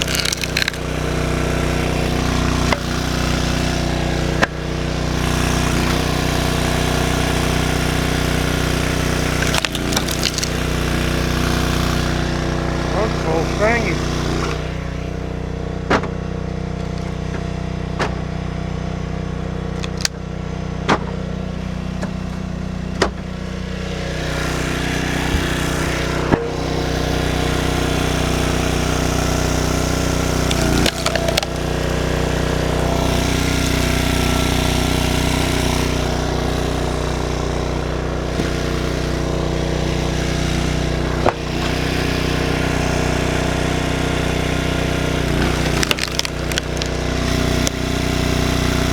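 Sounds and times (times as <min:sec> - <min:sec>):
wood splitting cracks: 0:00.0 - 0:14.8, 0:19.7 - 0:20.2, 0:24.2 - 0:36.2, 0:41.0 - 0:41.8, 0:44.4 - 0:48.9
small gasoline engine running: 0:00.0 - 0:48.9.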